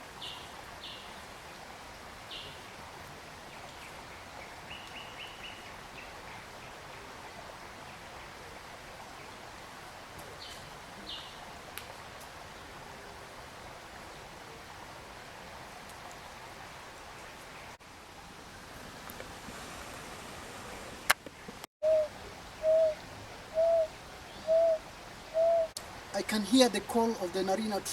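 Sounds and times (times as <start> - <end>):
running water rushing: 0.0 - 27.9
high-pitched bird notes: 23.6 - 24.8, 25.4 - 25.7.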